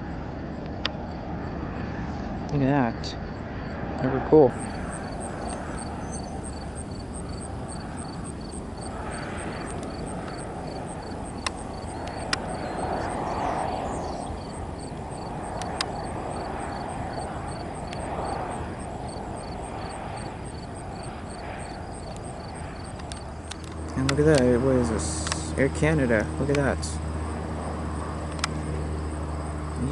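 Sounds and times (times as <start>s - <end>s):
airliner flying over: 0.0s - 29.9s
sharp clicks: 5.4s - 5.7s, 9.7s - 10.4s, 11.4s - 12.6s, 14.9s - 16.1s, 22.9s - 24.5s, 25.2s - 25.5s, 28.3s - 28.6s.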